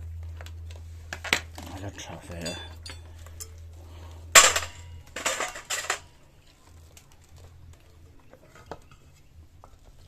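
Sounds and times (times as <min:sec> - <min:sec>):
metal pieces clattering: 0:04.4 - 0:06.1.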